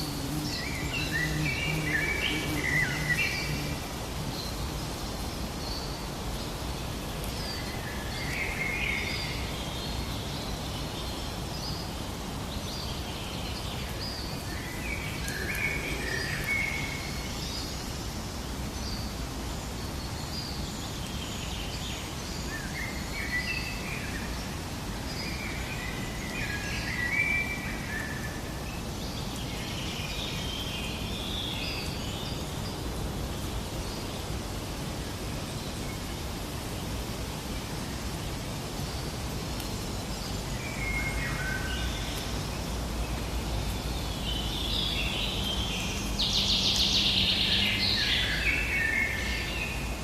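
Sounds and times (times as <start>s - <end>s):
birds chirping and singing: 0.0s - 4.7s
steady background hiss: 0.0s - 50.0s.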